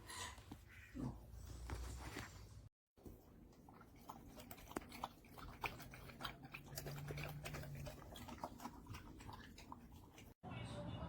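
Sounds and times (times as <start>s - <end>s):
dog chewing and crunching food: 3.0s - 10.4s.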